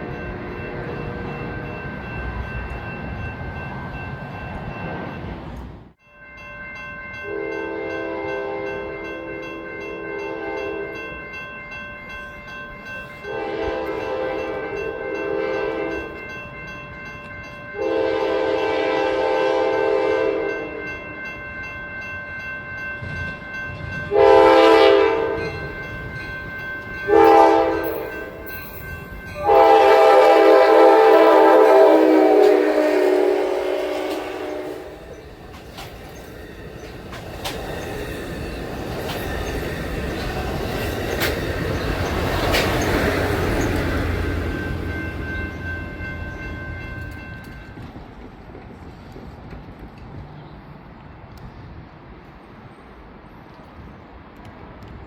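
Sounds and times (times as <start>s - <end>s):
train rumble: 6.7s - 55.0s
train horn blasts: 7.2s - 9.4s, 10.0s - 11.0s, 13.2s - 16.2s, 17.8s - 21.0s, 24.1s - 25.7s, 27.0s - 28.5s, 29.3s - 35.2s.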